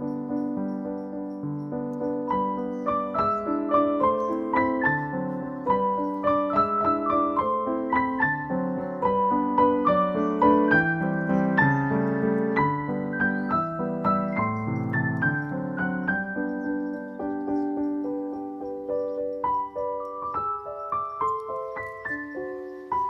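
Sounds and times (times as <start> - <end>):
gentle piano music: 0.0 - 23.0.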